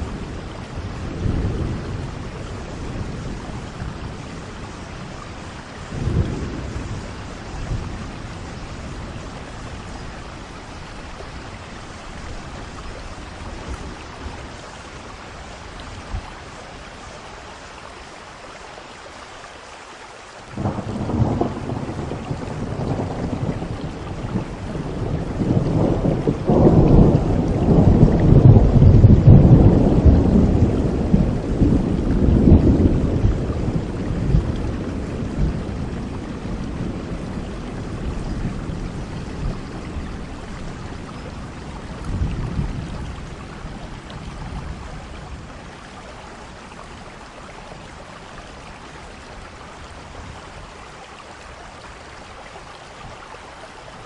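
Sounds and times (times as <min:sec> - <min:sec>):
thunder rumbling: 0:00.0 - 0:16.3, 0:20.6 - 0:46.7
steady rain: 0:00.0 - 0:54.0.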